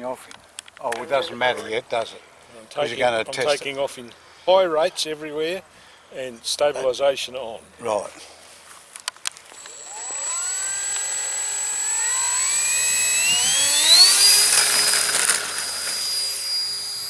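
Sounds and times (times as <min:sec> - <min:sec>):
model airplane motor whine: 0:09.6 - 0:17.0.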